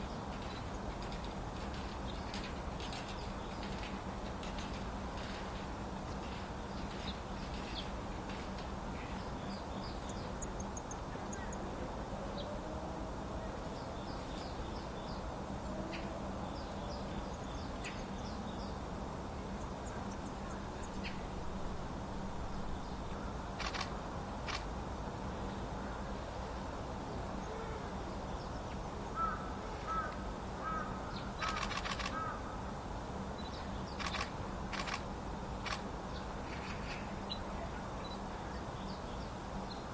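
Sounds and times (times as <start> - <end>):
steady distant hum: 0.0 - 39.9
small birds chirping: 9.0 - 11.7
wing flutters: 23.6 - 24.7, 31.4 - 32.3, 34.0 - 35.0
harsh repeated bird calls: 29.2 - 32.6.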